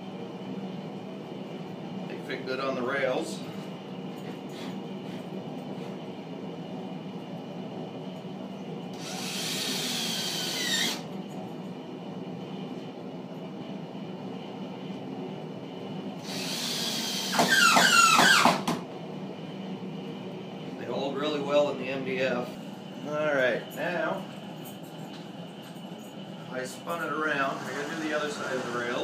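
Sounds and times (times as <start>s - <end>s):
power drill driving screws: 9.0s - 11.0s, 16.2s - 18.7s.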